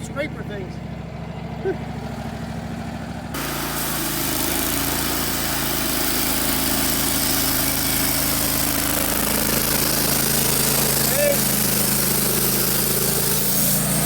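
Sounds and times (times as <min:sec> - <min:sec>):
sawmill engine running: 0:00.0 - 0:14.0
band blade rushing hiss: 0:10.5 - 0:14.0.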